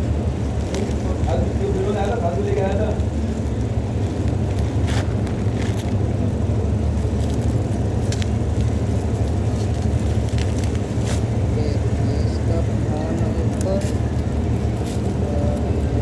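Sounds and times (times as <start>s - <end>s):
low background rumble: 0.0s - 16.0s
packaging crackling and clicking: 0.6s - 6.0s, 7.0s - 11.3s.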